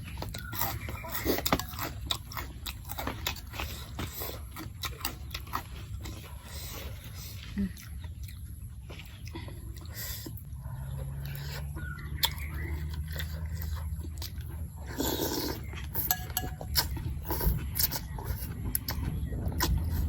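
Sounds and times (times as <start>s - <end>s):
person chewing: 0.0s - 20.0s
steady low rumble: 15.6s - 20.0s.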